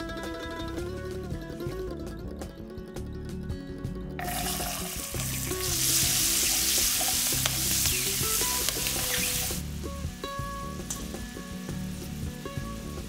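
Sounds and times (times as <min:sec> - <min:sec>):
peas sizzling in hot oil: 0:04.2 - 0:13.0.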